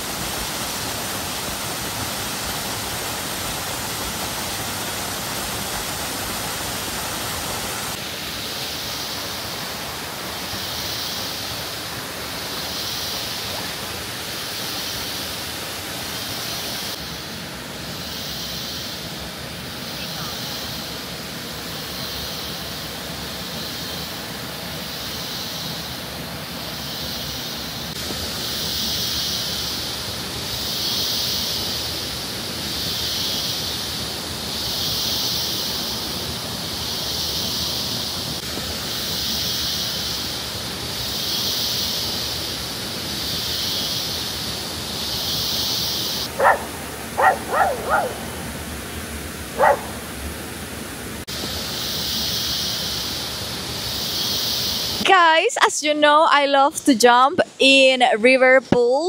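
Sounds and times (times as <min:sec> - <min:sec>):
waterfall rushing: 0:00.0 - 0:16.9, 0:46.1 - 0:51.5
high hiss: 0:00.0 - 0:58.4
dog yapping: 0:46.3 - 0:48.4, 0:49.6 - 0:50.0.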